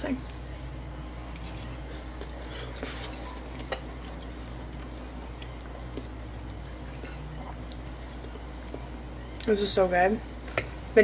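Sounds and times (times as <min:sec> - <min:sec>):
steady low hum: 0:00.0 - 0:11.0
person chewing food: 0:01.3 - 0:09.5.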